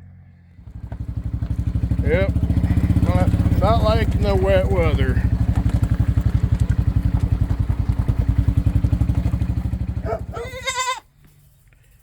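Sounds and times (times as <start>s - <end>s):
farm vehicle engine pulsing: 0.0s - 10.9s
goat bleating: 10.2s - 11.1s.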